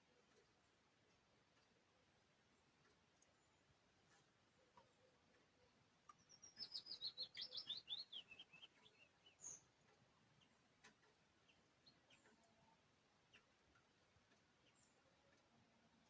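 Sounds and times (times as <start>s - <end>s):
faint clicks: 0.0s - 7.2s, 8.2s - 16.0s
songbird singing descending notes: 6.2s - 9.7s.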